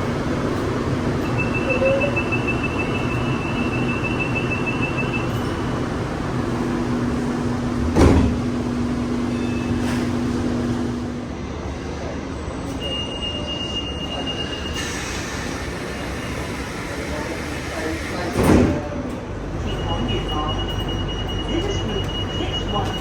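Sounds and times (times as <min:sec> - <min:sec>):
train running noise: 0:00.0 - 0:23.0
rapid high door warning beeps: 0:01.1 - 0:07.8, 0:12.8 - 0:14.8, 0:19.5 - 0:23.0
sliding doors shutting thud: 0:03.0 - 0:11.1.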